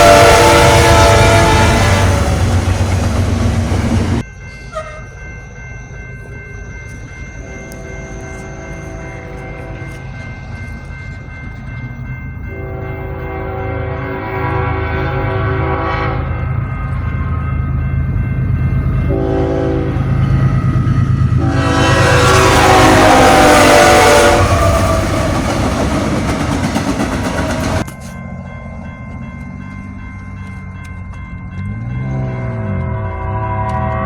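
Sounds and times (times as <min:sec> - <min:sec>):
locomotive horn blasts: 0:00.0 - 0:05.1, 0:07.4 - 0:10.0, 0:12.5 - 0:16.6, 0:19.1 - 0:25.5, 0:32.1 - 0:34.0
train rumbling past: 0:00.0 - 0:34.0.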